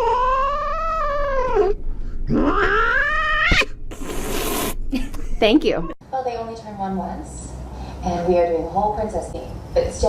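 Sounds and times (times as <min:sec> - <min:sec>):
cat yowling: 0:00.0 - 0:03.7.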